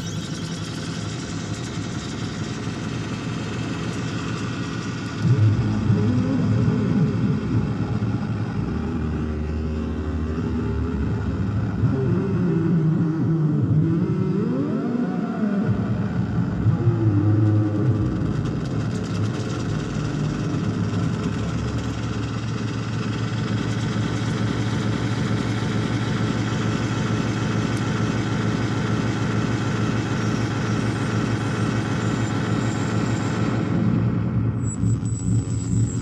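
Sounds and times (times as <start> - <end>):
dense synthesizer drone: 0.0 - 36.0
heavy rumble: 5.0 - 14.2, 15.6 - 23.9.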